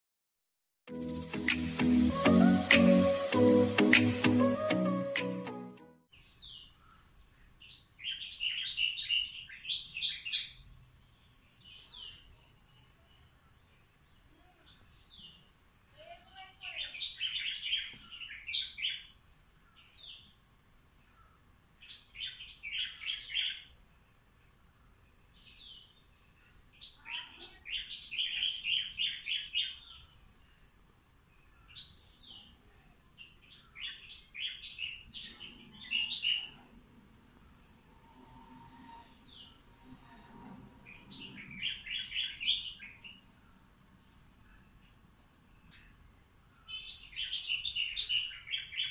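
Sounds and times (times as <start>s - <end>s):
songbird chattering song: 6.1s - 37.8s, 40.8s - 48.9s.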